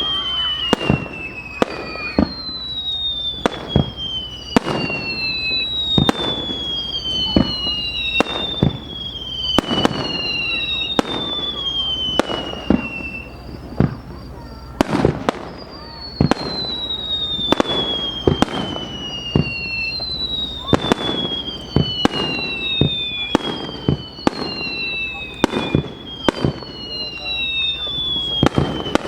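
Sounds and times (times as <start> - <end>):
firework bangs: 0.0 - 29.0
whistling firework shells: 0.0 - 29.0.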